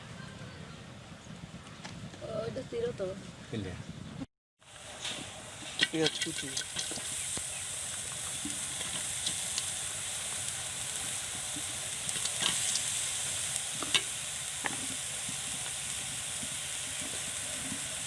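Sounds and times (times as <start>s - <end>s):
onion sizzling in oil: 4.6s - 18.0s.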